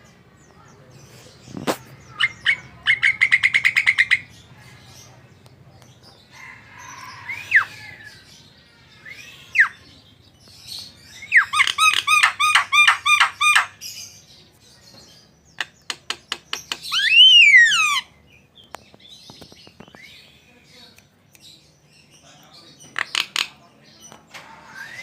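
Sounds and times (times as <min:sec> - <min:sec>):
bird whistling: 0:16.9 - 0:18.0, 0:24.7 - 0:25.0.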